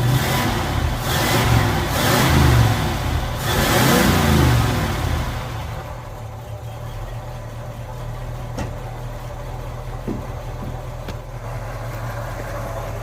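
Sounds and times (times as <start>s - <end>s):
bus engine idling: 5.0s - 13.0s.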